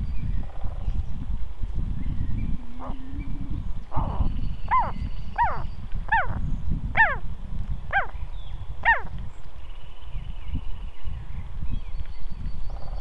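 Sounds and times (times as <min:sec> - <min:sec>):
steady low rumble: 0:00.0 - 0:09.6
bird calling: 0:02.1 - 0:07.2, 0:07.9 - 0:09.2.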